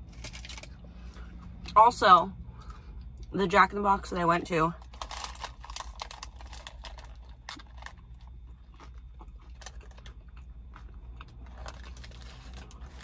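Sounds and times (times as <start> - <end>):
steady low hum: 0.0 - 13.0
crunchy food chewing: 4.8 - 13.0.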